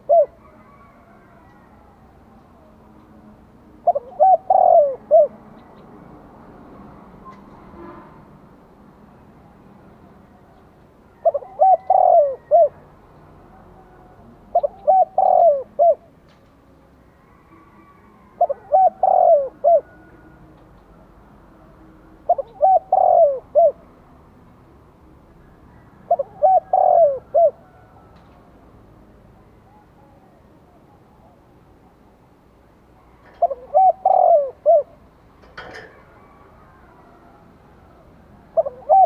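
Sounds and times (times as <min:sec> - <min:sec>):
dove cooing: 0:00.0 - 0:02.8, 0:03.8 - 0:05.8, 0:11.1 - 0:12.9, 0:13.5 - 0:16.2, 0:17.1 - 0:20.4, 0:22.2 - 0:24.0, 0:25.7 - 0:28.4, 0:33.0 - 0:39.0.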